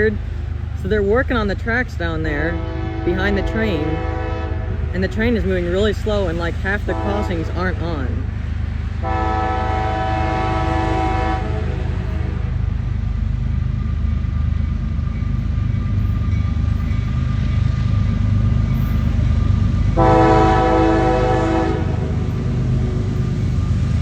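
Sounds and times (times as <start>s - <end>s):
diesel locomotive rumbling: 0.0s - 24.0s
train air horn: 2.5s - 4.8s, 6.9s - 7.3s, 9.0s - 12.4s, 20.0s - 22.2s.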